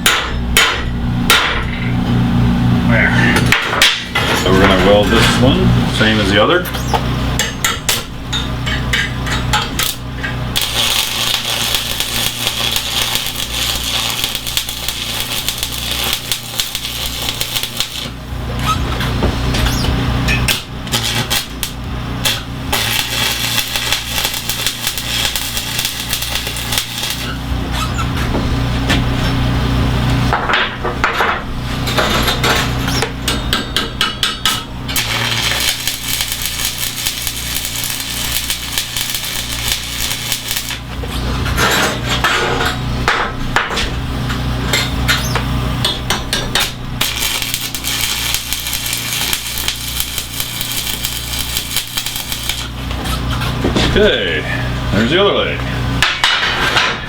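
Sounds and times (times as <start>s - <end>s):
arc welding crackling buzz: 3.5s - 30.8s, 31.4s - 56.6s.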